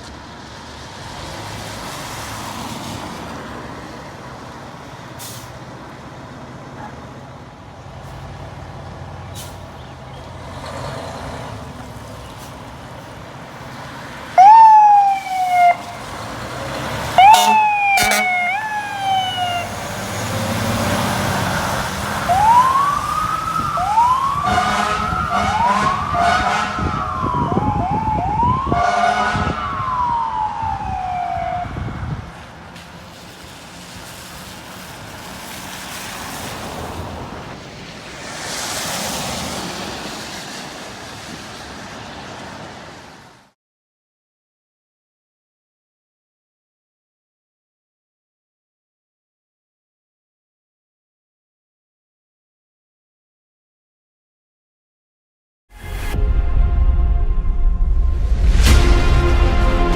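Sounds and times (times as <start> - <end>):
truck engine rumble: 0.0 - 43.4
fire truck siren: 14.0 - 43.3.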